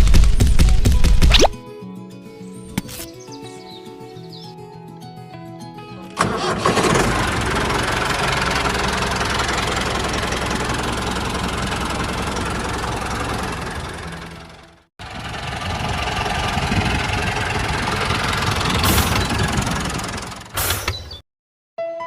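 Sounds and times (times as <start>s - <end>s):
light music: 0.4s - 6.7s
tractor engine rumbling: 6.1s - 21.2s.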